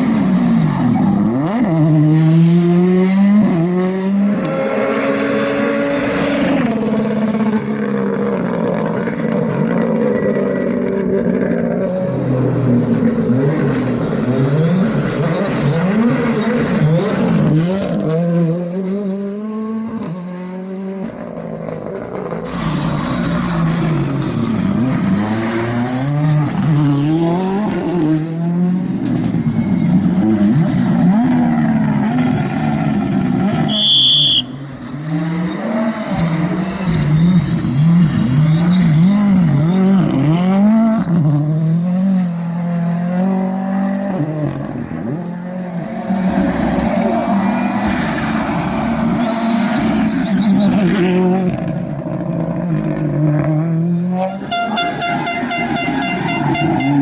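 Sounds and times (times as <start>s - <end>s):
rally car engine revving: 0.0s - 57.0s
short high beep: 33.7s - 34.6s, 54.2s - 57.0s.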